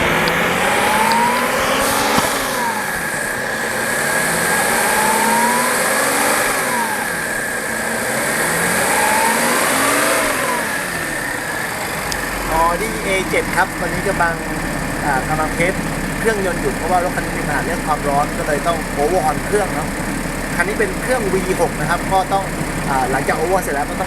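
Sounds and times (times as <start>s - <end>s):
car engine revving: 0.0s - 24.0s
steady high whine: 10.7s - 24.0s.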